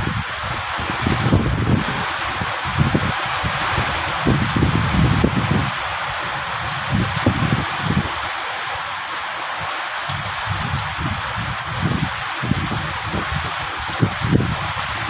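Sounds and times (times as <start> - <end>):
steady rainfall hiss: 0.0 - 15.0
raindrop ticks: 10.1 - 11.7.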